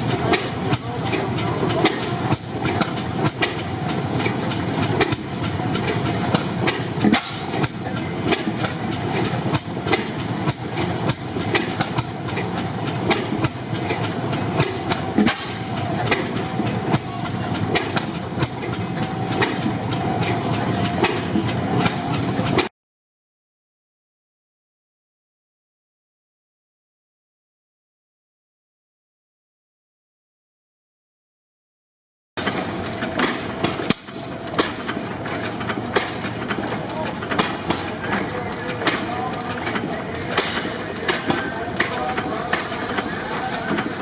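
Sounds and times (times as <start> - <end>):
stationary gas engines running: 0.0 - 22.7, 32.4 - 44.0
sharp clicks and knocks: 0.1 - 22.7, 32.4 - 44.0.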